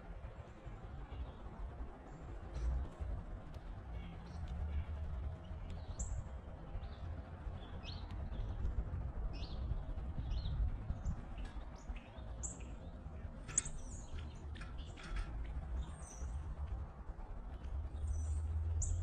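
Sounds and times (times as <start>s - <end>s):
steady low rumble: 0.0s - 19.0s
bird chip notes and chirps: 11.3s - 16.5s.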